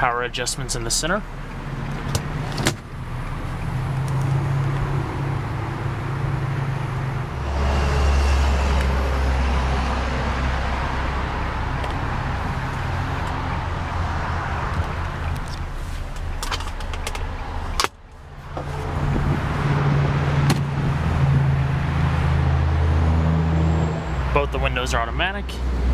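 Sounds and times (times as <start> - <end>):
car engine idling: 8.5 - 21.8.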